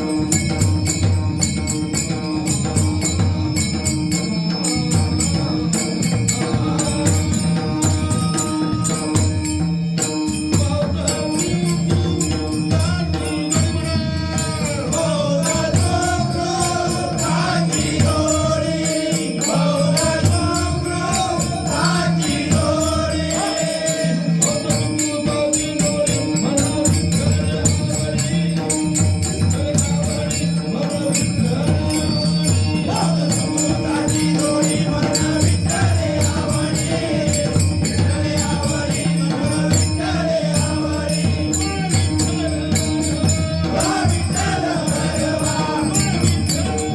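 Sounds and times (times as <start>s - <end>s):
person singing devotional song: 0.0s - 46.9s
small hand cymbals jingling: 0.0s - 46.9s
steady held tones: 0.0s - 46.9s.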